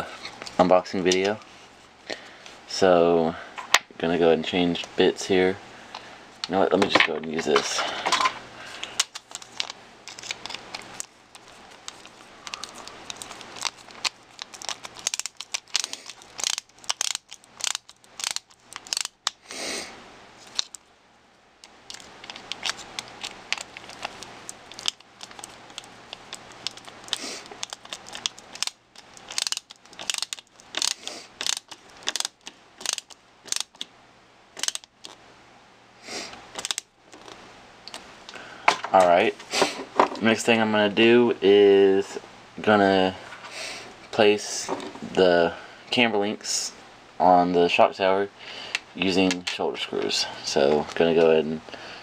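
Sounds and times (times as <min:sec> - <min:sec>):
small parts and tools clicking: 0:07.6 - 0:19.4, 0:20.4 - 0:20.8, 0:21.6 - 0:33.9, 0:34.6 - 0:35.2, 0:36.3 - 0:38.8.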